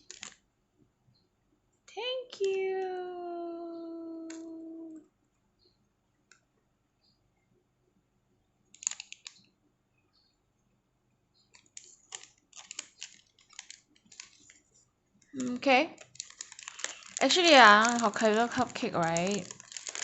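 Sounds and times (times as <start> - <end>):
packaging clicks and crackles: 0.0 - 0.4, 8.8 - 9.5, 11.5 - 14.6, 15.4 - 20.0.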